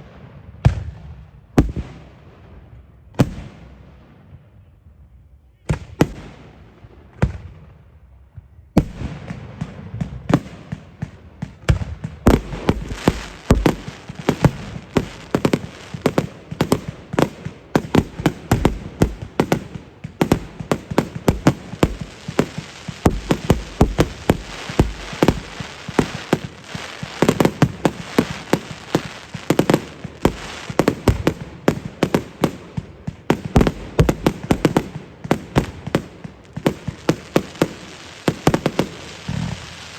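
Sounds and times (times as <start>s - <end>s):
fireworks booming and cracking: 0.0s - 2.4s, 3.2s - 4.4s, 8.8s - 39.9s.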